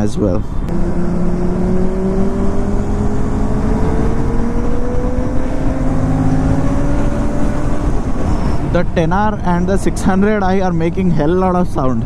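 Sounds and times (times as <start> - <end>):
motorcycle engines: 0.0 - 12.0
wind rush: 0.5 - 9.5.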